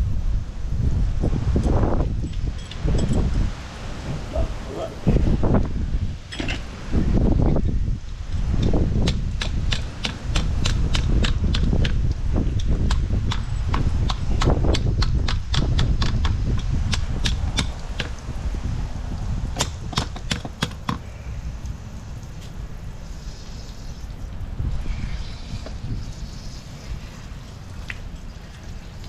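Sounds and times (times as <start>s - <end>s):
faint hiss: 21.0s - 29.0s.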